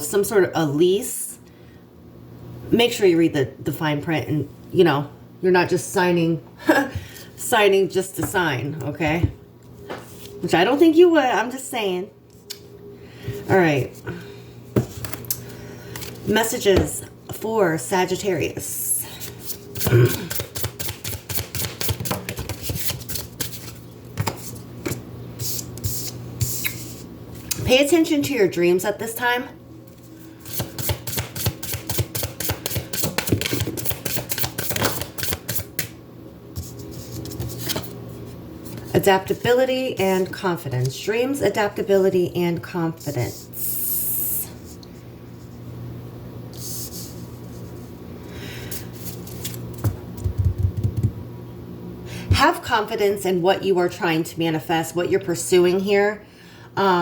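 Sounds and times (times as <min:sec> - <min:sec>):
low room hum: 0:00.0 - 0:57.0
cards being shuffled: 0:30.5 - 0:35.9.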